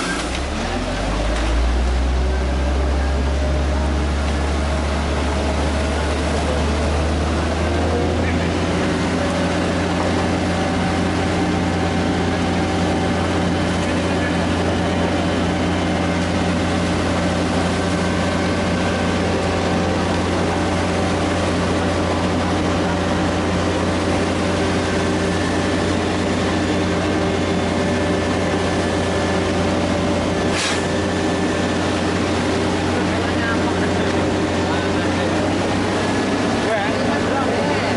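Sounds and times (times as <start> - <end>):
diesel construction machinery running: 0.0 - 37.9.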